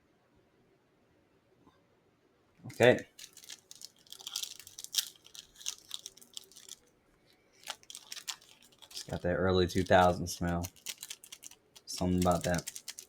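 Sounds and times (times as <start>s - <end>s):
plastic wrapper crinkling and tearing: 3.0s - 6.9s, 7.6s - 13.0s.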